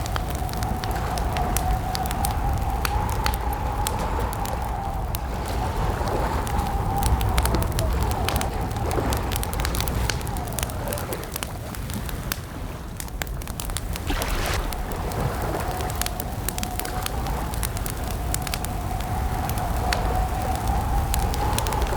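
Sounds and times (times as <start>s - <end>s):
campfire crackling and popping: 0.0s - 21.9s
low rumble: 12.9s - 18.8s.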